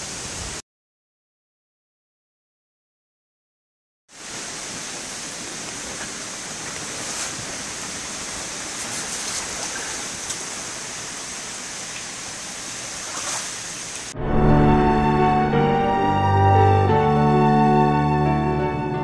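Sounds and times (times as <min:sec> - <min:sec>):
heavy rain into standing water: 0:00.0 - 0:00.6, 0:04.1 - 0:18.2
push broom swishing water: 0:06.0 - 0:10.6, 0:12.8 - 0:14.1.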